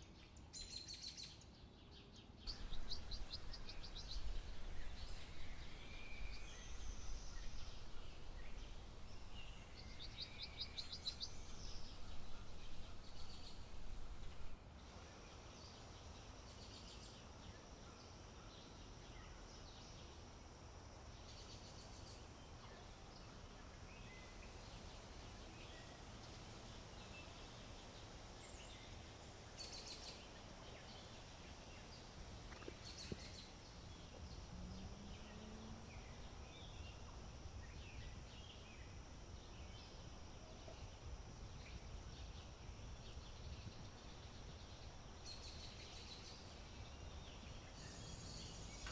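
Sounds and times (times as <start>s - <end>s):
faint bird chirps: 2.5s - 14.6s, 29.6s - 48.9s
low wind rumble: 2.5s - 14.6s.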